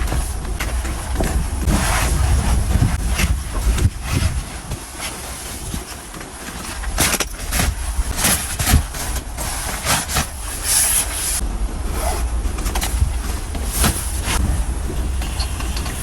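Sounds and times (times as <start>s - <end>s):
strong wind gusting: 0.0s - 4.8s, 11.4s - 16.0s.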